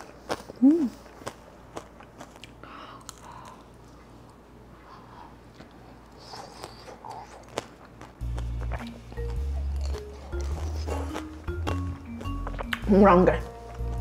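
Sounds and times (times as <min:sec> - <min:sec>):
chewing: 0:00.0 - 0:14.0
sugar glaze crunching: 0:00.0 - 0:14.0.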